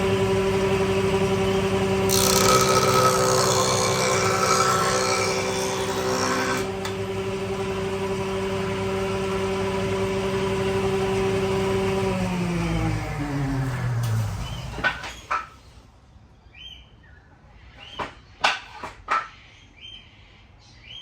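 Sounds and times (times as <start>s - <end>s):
power tool working noise: 0.0s - 14.9s
power tool motor whining: 2.1s - 6.9s.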